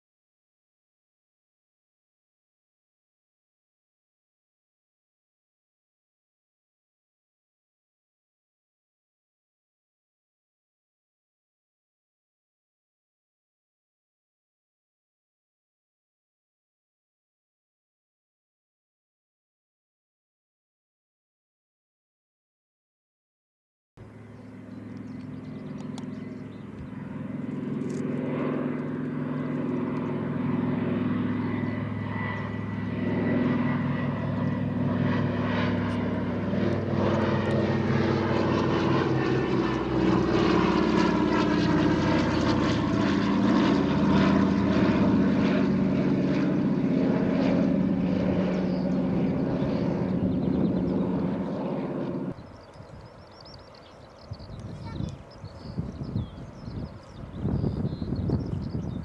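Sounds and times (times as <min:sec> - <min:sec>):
propeller aircraft droning overhead: 0:24.0 - 0:59.0.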